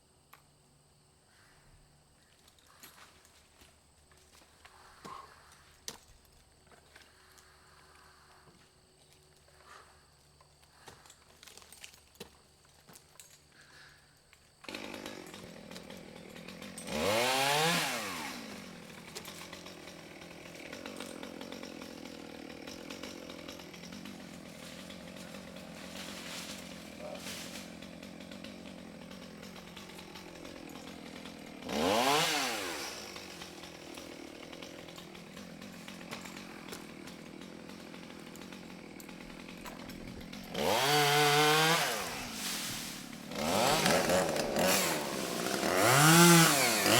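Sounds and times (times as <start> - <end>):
chainsaw idling and revving: 14.5 - 46.9.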